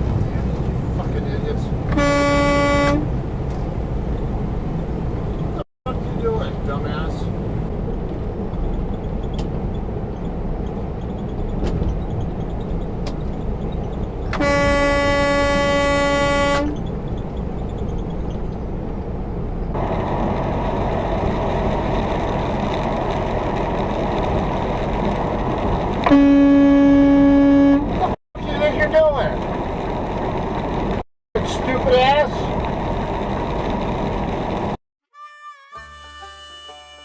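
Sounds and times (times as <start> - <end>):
engine and road noise in cab: 0.0 - 34.8
truck horn blasts: 1.9 - 3.1, 14.3 - 16.8, 26.0 - 28.0, 35.2 - 37.0.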